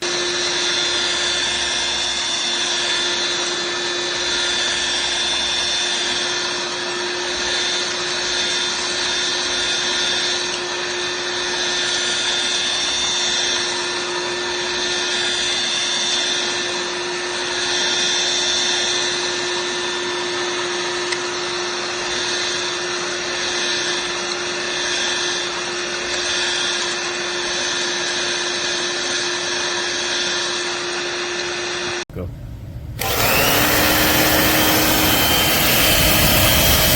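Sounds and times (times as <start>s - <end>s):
vacuum cleaner motor whine: 0.0s - 36.9s.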